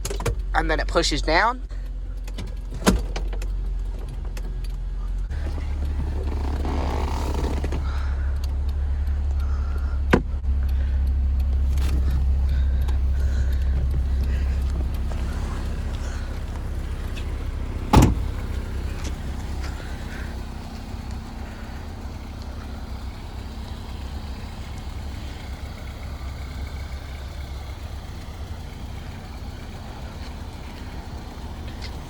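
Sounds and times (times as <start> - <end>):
car engine idling: 0.0 - 32.0
sharp thud: 17.9 - 18.4.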